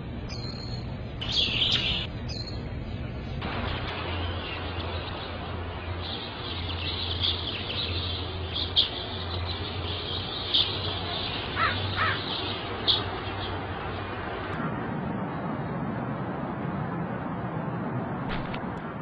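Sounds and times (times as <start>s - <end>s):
steady low hum: 0.0s - 19.0s
birds chirping: 0.2s - 14.5s.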